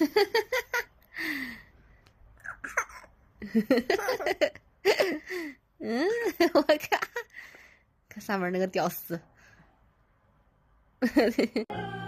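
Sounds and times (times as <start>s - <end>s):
breathy gasp: 1.1s - 1.7s.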